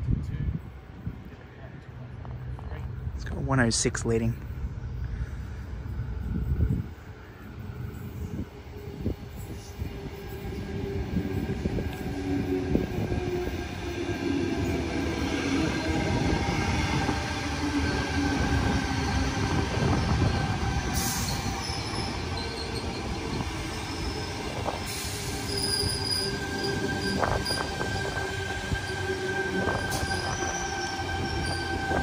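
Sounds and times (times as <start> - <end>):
train wheels rumbling on rails: 4.2 - 32.0
high-pitched wheel squeal: 21.0 - 32.0.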